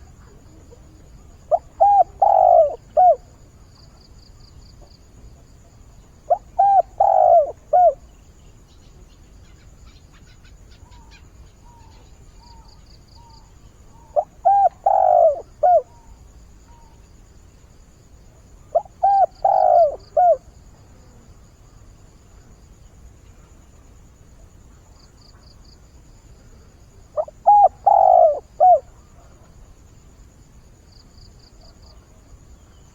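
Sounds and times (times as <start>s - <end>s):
dove cooing: 0.0s - 3.3s, 6.3s - 8.0s, 14.0s - 16.1s, 18.7s - 20.5s, 27.2s - 29.5s
faint small-bird chirps: 6.3s - 17.0s.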